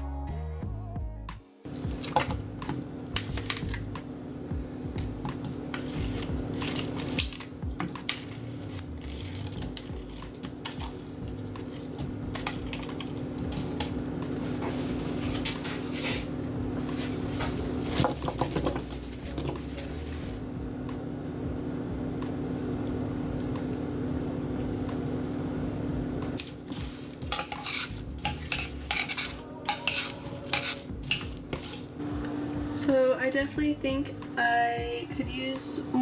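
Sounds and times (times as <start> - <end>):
steady low hum: 1.7 - 36.0
metal utensil scraping a dish: 26.7 - 31.9.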